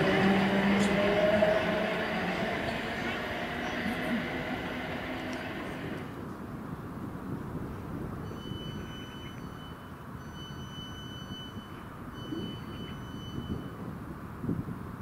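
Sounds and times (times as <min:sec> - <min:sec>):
distant train rumble: 0:00.0 - 0:06.8.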